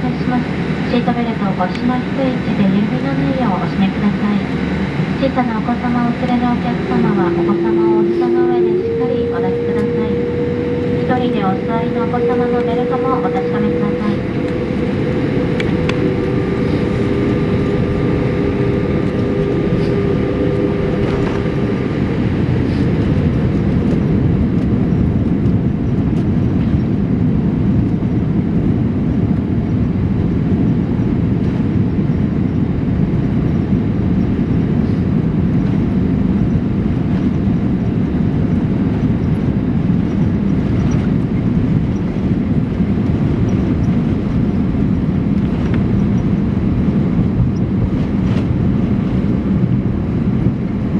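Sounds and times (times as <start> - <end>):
faint steady tones: 0.0 - 27.0
airliner cabin engine rumble: 0.0 - 50.9.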